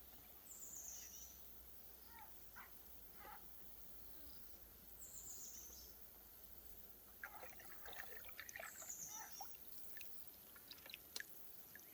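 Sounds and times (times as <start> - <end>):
water trickling and dripping: 7.1 - 11.9.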